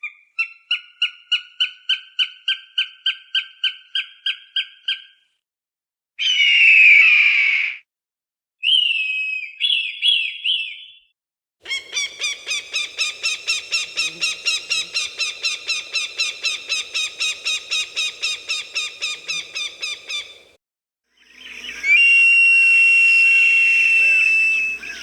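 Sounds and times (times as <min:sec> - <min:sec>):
falcon calls: 0:11.7 - 0:20.5.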